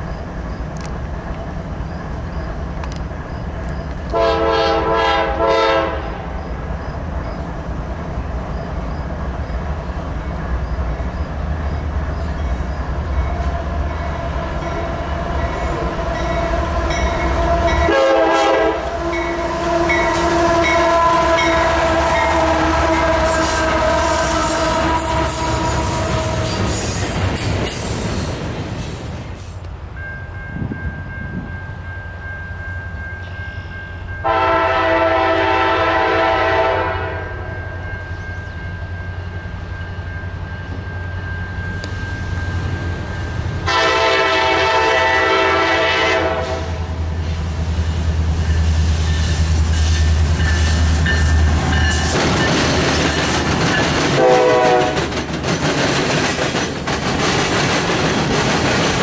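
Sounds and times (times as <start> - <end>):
diesel locomotive engines rumbling: 0.0 - 59.0
train air horn blasts: 4.1 - 6.3, 14.1 - 27.0, 34.2 - 37.7, 43.6 - 47.0, 54.1 - 55.1
wheels clicking over rail joints: 49.9 - 59.0.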